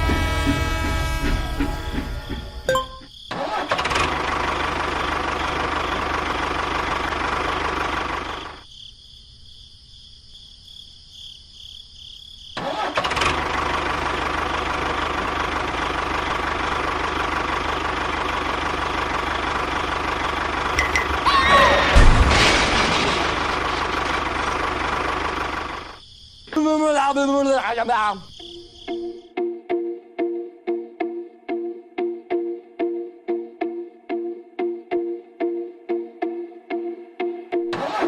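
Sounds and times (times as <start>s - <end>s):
small engine running: 3.3s - 8.6s, 12.6s - 21.3s, 23.4s - 26.0s.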